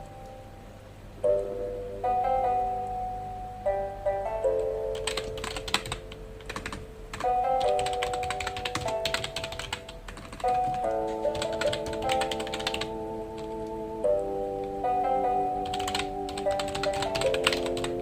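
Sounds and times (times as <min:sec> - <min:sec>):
soft background music: 0:00.0 - 0:18.0
typing on keyboard: 0:04.6 - 0:13.8, 0:15.6 - 0:18.0.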